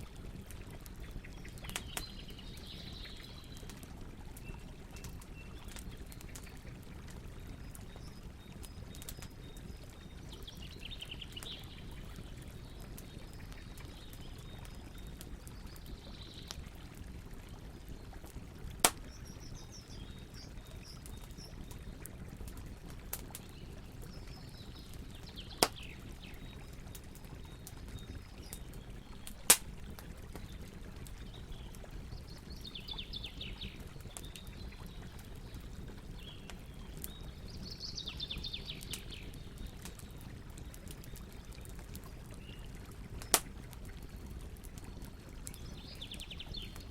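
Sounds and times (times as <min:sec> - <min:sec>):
campfire crackling: 0:00.0 - 0:46.9
flowing water: 0:00.0 - 0:46.9
loud sharp pops: 0:18.8 - 0:19.1, 0:29.5 - 0:29.7.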